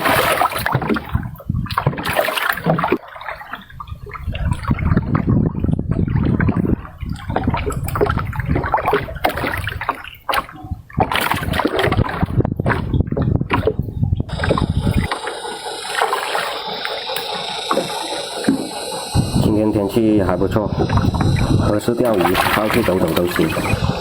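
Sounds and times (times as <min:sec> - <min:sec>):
water splashing and sloshing: 0:00.0 - 0:24.0
steady hum: 0:14.3 - 0:24.0
low rumble: 0:17.6 - 0:24.0.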